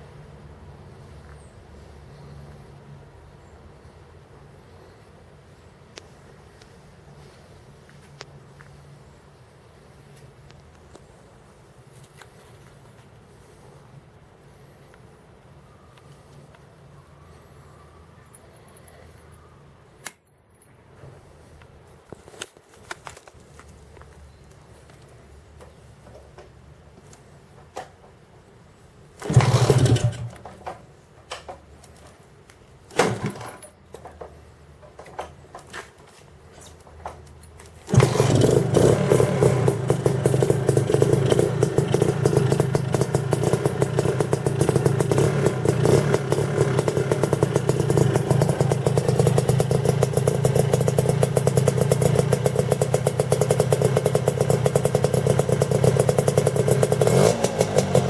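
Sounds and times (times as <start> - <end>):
scooter engine running: 29.2 - 30.7, 37.9 - 58.0
engine knocks and bursts: 29.2 - 30.9, 37.8 - 58.0.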